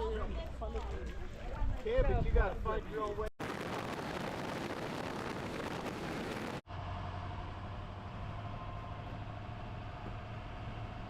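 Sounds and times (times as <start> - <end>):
road and wind noise: 0.3 - 11.0
low engine hum: 5.8 - 11.0.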